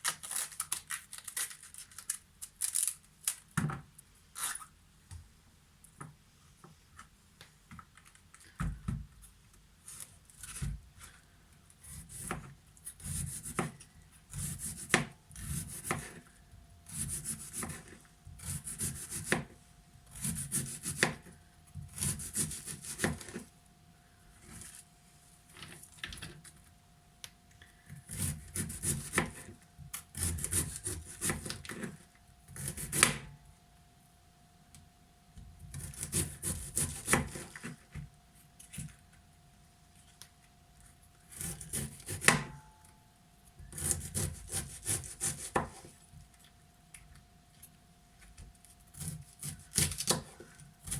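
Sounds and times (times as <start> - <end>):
knife slicing through cabbage: 11.8 - 16.2.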